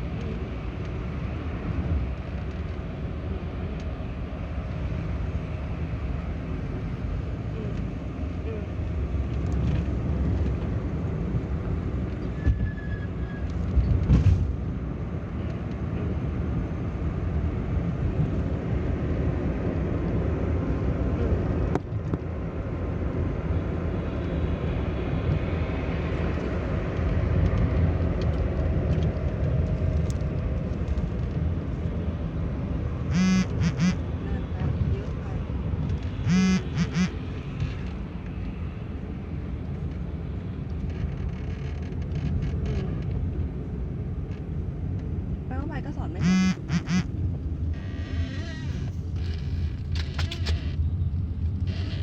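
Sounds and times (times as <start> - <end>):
car engine and road noise: 0.0 - 52.0
nasal honk-like call: 33.1 - 34.0, 36.2 - 37.2, 46.2 - 47.1.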